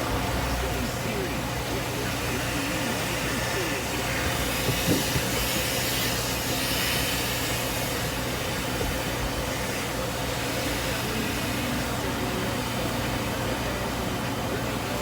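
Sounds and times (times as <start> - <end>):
road and wind noise in car: 4.1 - 5.8.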